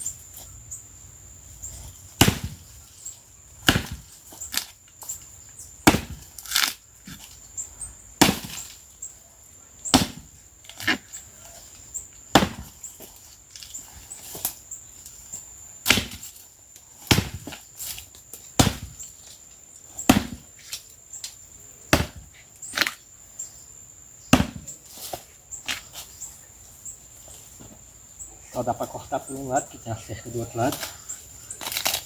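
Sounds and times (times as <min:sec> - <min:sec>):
axe chopping into tree trunk: 0:02.2 - 0:02.7, 0:03.6 - 0:04.7, 0:05.8 - 0:07.2, 0:08.2 - 0:08.8, 0:09.9 - 0:11.0, 0:12.3 - 0:12.8, 0:15.8 - 0:16.4, 0:17.0 - 0:18.0, 0:18.6 - 0:19.1, 0:20.0 - 0:20.8, 0:21.9 - 0:23.0, 0:24.3 - 0:25.9, 0:31.6 - 0:32.0.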